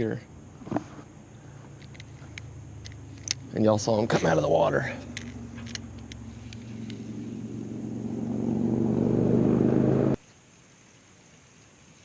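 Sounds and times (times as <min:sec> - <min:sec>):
motor droning: 0:01.4 - 0:10.2.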